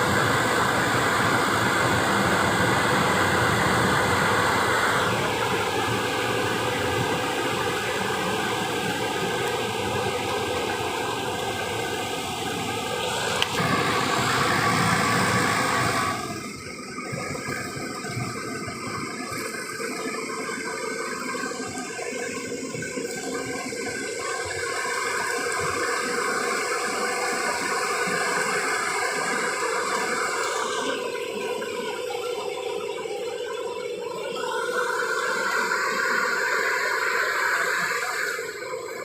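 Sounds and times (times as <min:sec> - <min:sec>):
engine sprayer running with hiss: 0:00.0 - 0:39.0.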